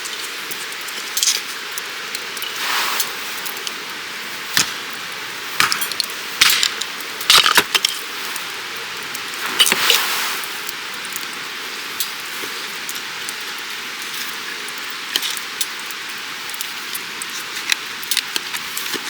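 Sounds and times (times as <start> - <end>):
steady rushing hiss: 0.0 - 19.0.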